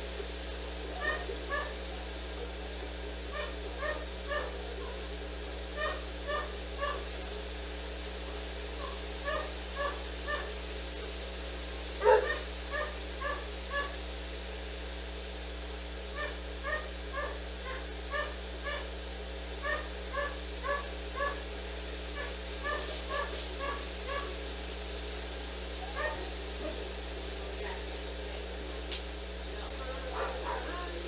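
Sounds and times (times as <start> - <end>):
low electrical hum: 0.0 - 31.0
dog whimpering: 1.0 - 1.8, 3.3 - 5.0, 5.8 - 7.1, 8.8 - 10.6, 12.0 - 14.0, 16.2 - 18.9, 19.6 - 21.4, 22.2 - 24.3, 25.8 - 26.8.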